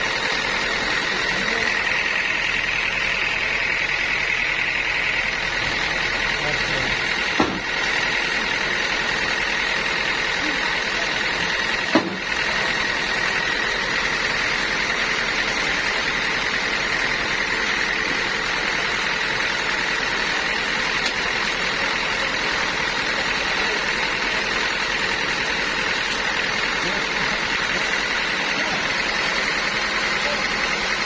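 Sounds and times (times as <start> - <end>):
sawmill machinery running: 0.0 - 31.0
sharp knock: 7.4 - 7.7, 11.9 - 12.2.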